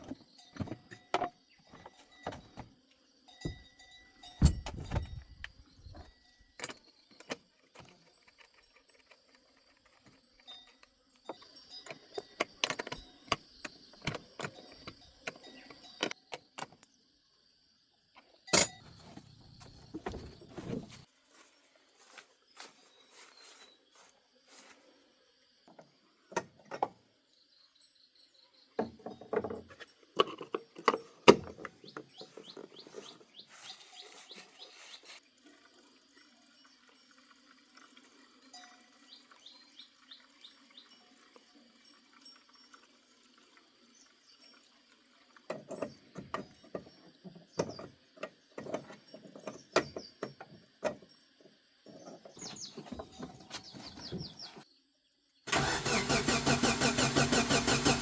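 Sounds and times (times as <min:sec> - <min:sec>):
birds chirping: 0:31.7 - 0:35.2, 0:51.9 - 0:54.6.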